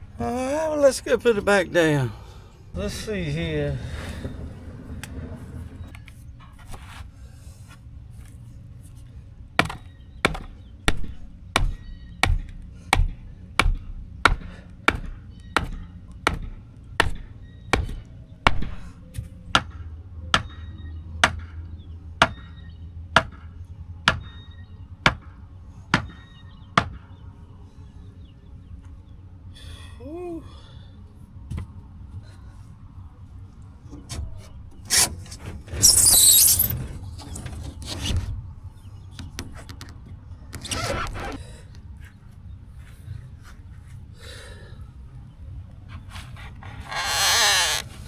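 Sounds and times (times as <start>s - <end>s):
tool striking wooden board: 9.6s - 19.0s.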